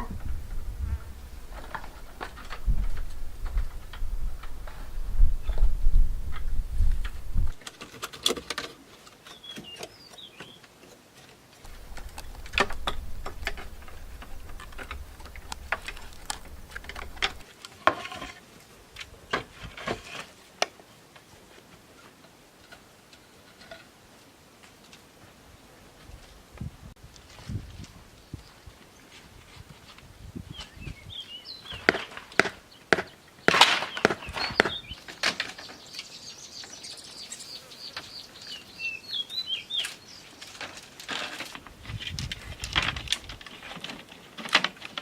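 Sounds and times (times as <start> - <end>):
low rumble: 0.0 - 7.6, 11.7 - 17.4
bamboo poles knocking and clicking: 6.3 - 18.1, 31.8 - 35.8, 40.4 - 45.0.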